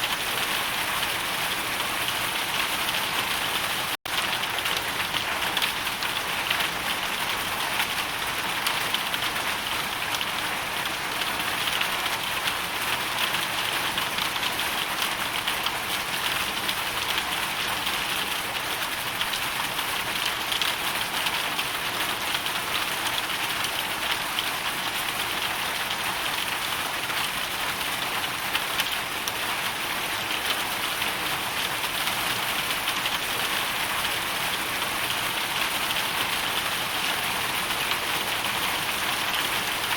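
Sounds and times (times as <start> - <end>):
hail and rain falling: 0.0 - 39.9.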